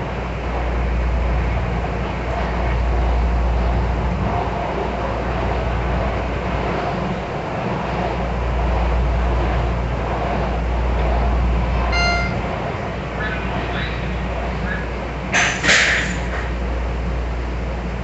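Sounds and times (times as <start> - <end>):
train rumbling on track: 0.0 - 18.0
short pitched tone: 11.9 - 12.6.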